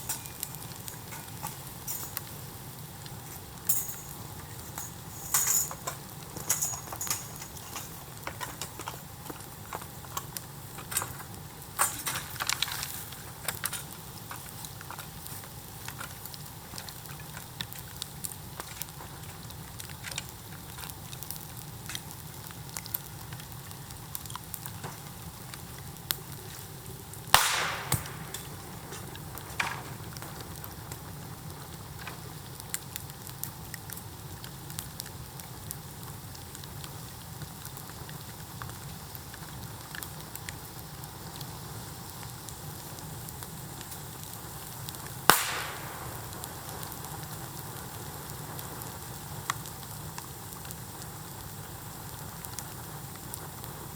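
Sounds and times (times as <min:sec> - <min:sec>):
bonfire crackling and hissing: 0:00.0 - 0:53.9
bamboo bursting with loud bang: 0:27.4 - 0:28.4, 0:45.3 - 0:46.4.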